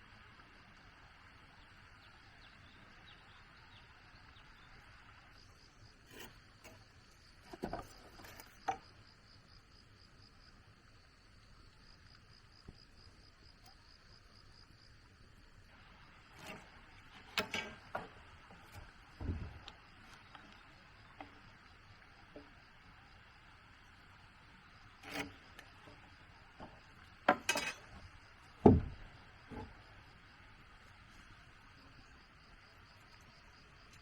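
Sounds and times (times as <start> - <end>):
insects chirping trill: 0.0 - 34.0
sharp knocks: 28.6 - 29.7.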